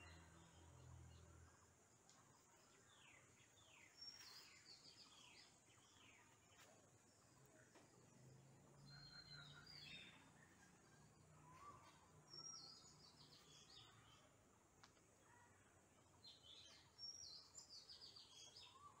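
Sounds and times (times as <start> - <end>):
songbird chirping: 0.0 - 19.0.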